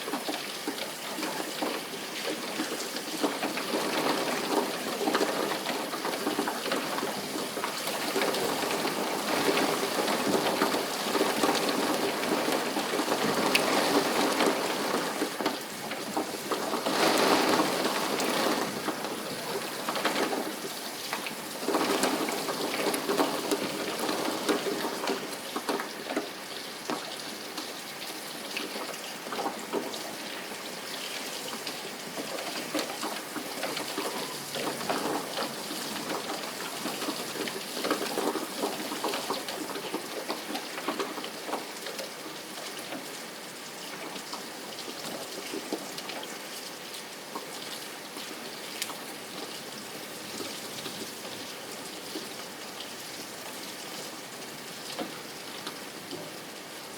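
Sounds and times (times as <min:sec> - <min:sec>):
steady rain with drops: 0:00.0 - 0:56.9.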